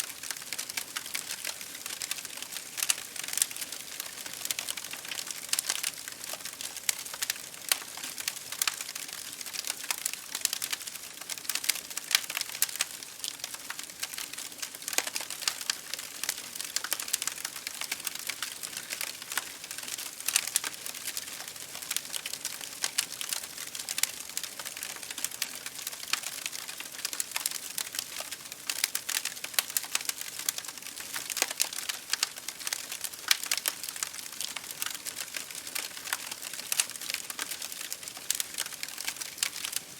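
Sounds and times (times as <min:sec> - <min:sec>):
rain pattering on a window: 0:00.0 - 0:39.9
wood fire crackling in a fireplace: 0:00.0 - 0:39.9.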